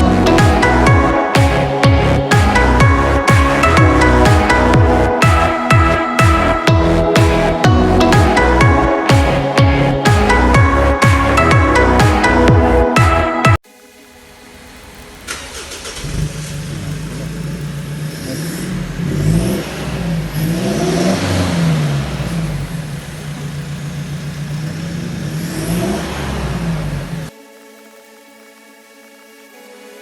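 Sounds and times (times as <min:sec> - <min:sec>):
pickup engine idling and revving: 0:14.6 - 0:27.3.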